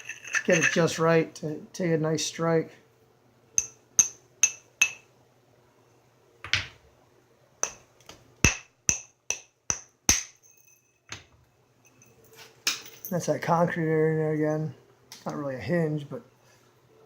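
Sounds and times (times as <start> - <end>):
hammerstone tapping stone: 3.6 - 5.0, 7.6 - 7.8, 8.4 - 10.4.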